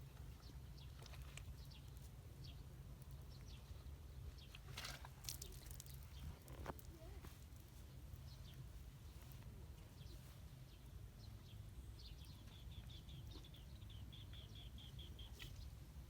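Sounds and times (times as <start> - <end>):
small birds chirping: 0.1 - 16.0.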